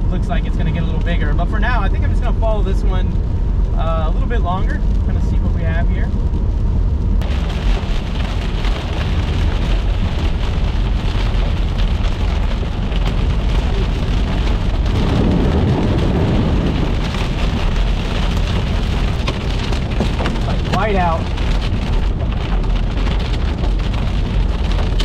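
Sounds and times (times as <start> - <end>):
low road rumble: 0.0 - 25.0
hail beating on a vehicle: 7.2 - 25.0.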